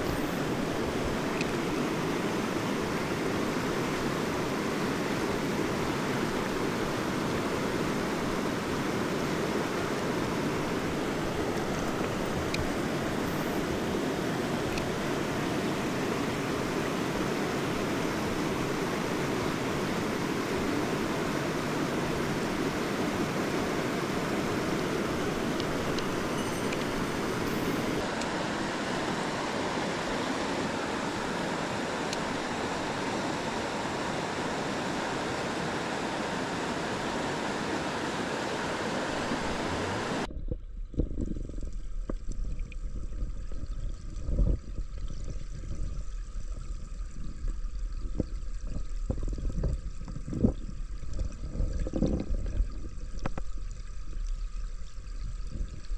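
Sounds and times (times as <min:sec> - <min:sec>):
stream rushing over rocks: 0:00.0 - 0:40.3
muffled underwater rumble: 0:39.4 - 0:55.9
underwater knocks and bubbling: 0:40.3 - 0:55.9.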